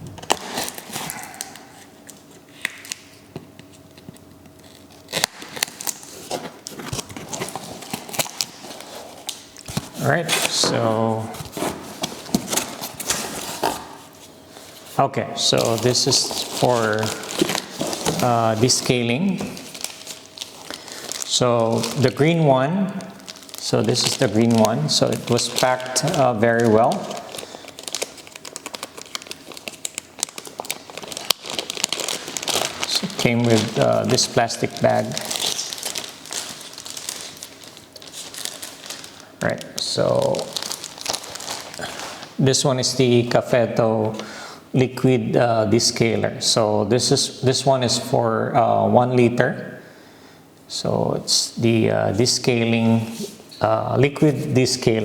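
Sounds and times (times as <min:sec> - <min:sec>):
cardboard and plastic rustling: 0:00.0 - 0:42.4
plastic packaging crinkling: 0:00.0 - 0:43.3.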